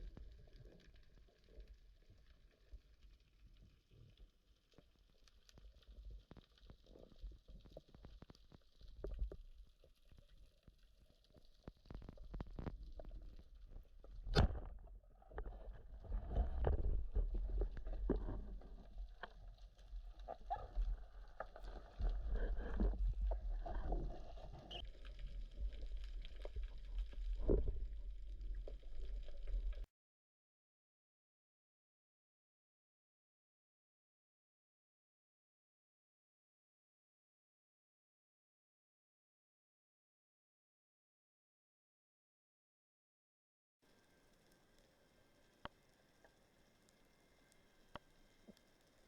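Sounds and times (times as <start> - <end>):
muffled underwater rumbling: 10.9 - 29.9.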